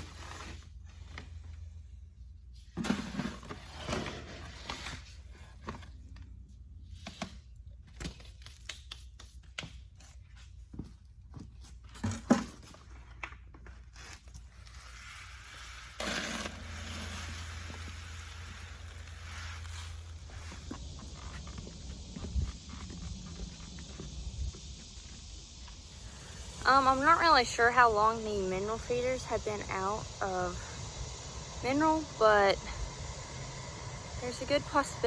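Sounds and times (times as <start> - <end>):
sacks rustling and scraping: 14.0 - 23.2
steady hiss: 14.8 - 35.0.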